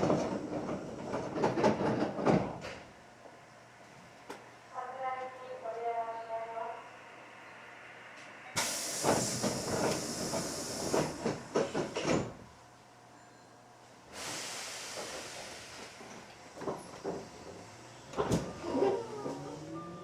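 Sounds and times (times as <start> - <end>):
compressed air hissing: 8.6 - 11.9, 14.1 - 16.0.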